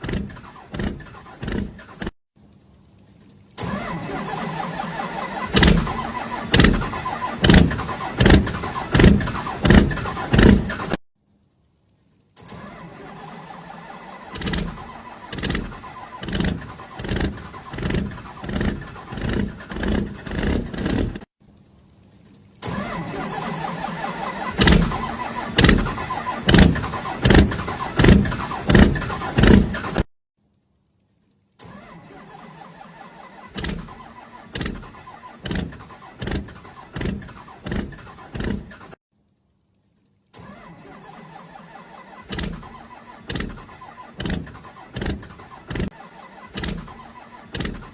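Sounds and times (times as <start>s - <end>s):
motorbike engine pulsing: 0.0s - 2.2s, 3.7s - 11.0s, 13.9s - 21.3s, 22.8s - 30.1s, 33.3s - 39.0s, 41.9s - 47.9s.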